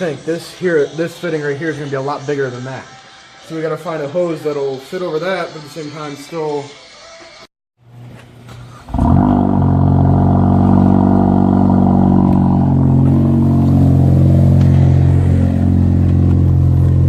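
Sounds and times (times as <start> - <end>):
car engine starting and idling: 8.5 - 17.0.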